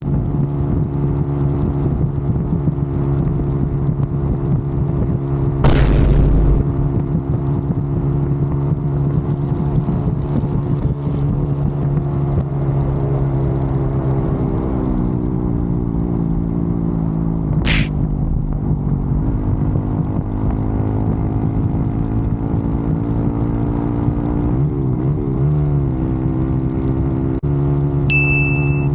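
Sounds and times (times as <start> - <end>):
loud thump: 5.6 - 6.7, 17.7 - 18.4
motorcycle engine running: 5.6 - 8.3, 27.7 - 28.9
short sharp click: 17.7 - 18.1.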